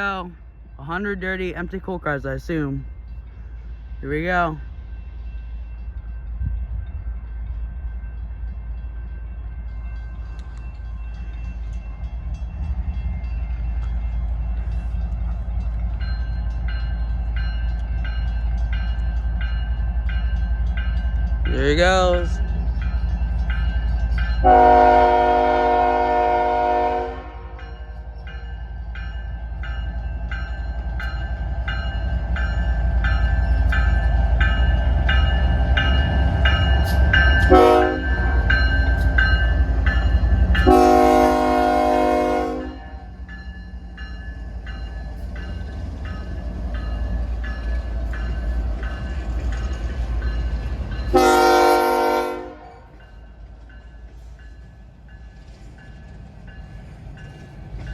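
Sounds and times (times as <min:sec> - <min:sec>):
locomotive air horn blasts: 0:24.4 - 0:27.6, 0:37.5 - 0:38.2, 0:40.6 - 0:42.9, 0:51.1 - 0:52.9.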